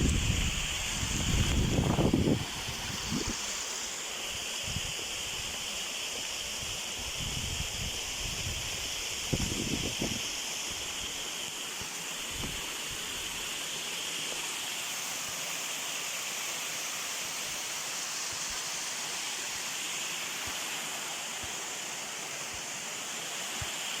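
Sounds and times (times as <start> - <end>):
waterfall rushing: 8.9 - 24.0.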